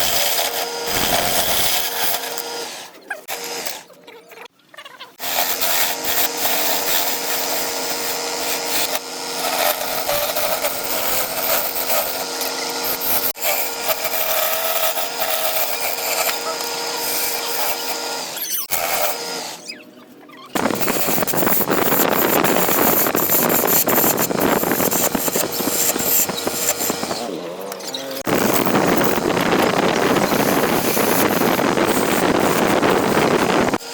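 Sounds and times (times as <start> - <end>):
turning tool scraping wood: 0.0 - 3.9, 5.2 - 19.8, 20.5 - 33.9
wood lathe motor hum: 0.0 - 3.9, 5.2 - 19.8, 20.5 - 33.9.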